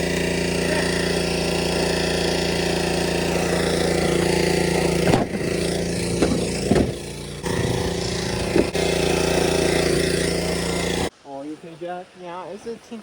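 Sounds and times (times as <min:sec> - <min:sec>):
vehicle engine running: 0:00.0 - 0:11.1
knocks and jolts: 0:04.2 - 0:08.8.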